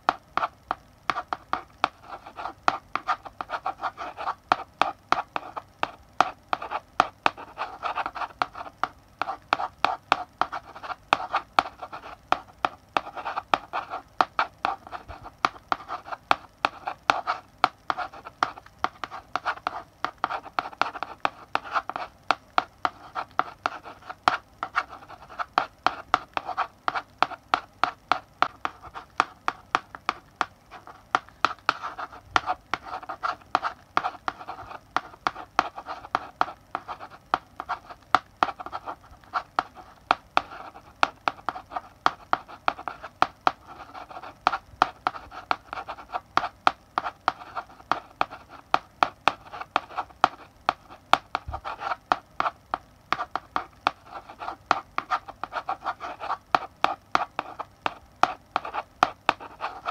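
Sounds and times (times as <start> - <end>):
chalk tapping on blackboard: 0.0 - 59.9
chalk scratching on blackboard: 0.1 - 59.9.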